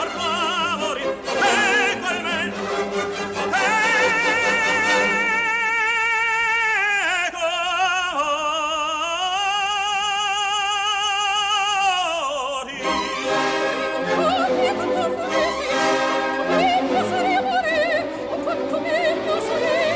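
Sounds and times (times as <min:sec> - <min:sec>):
orchestra playing: 0:00.0 - 0:05.6, 0:12.8 - 0:19.9
operatic tenor singing: 0:00.0 - 0:19.9.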